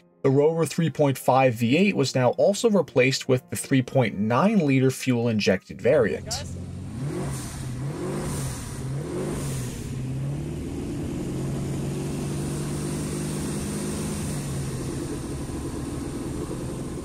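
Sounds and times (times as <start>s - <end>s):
race car engine revving: 6.2s - 17.0s.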